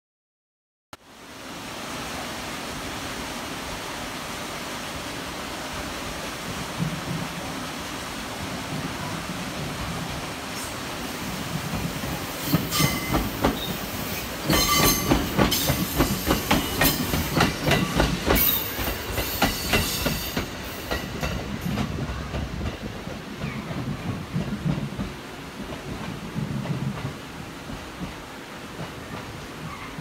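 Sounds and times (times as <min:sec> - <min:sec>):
train wheels clacking over points: 0:11.5 - 0:27.2.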